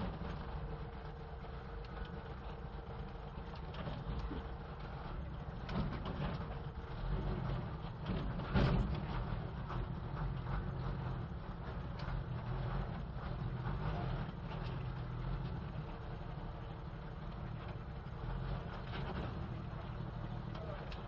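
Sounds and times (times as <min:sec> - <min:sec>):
truck engine rumbling: 0:00.0 - 0:21.0
cab rattle: 0:05.7 - 0:21.0.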